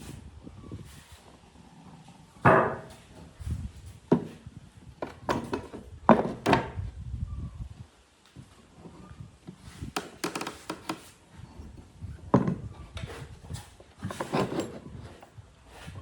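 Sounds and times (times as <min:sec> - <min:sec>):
scraping and thudding: 0:02.4 - 0:06.8, 0:09.8 - 0:16.0
wooden boards knocking: 0:02.5 - 0:02.9.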